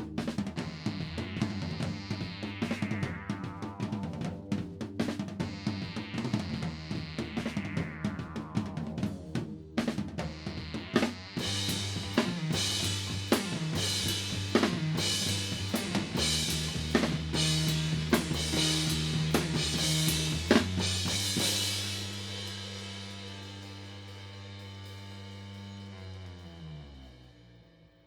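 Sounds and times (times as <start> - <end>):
low bass notes: 0.0 - 28.0
crashing cymbals: 11.4 - 25.8
drum kit hits: 11.5 - 23.3.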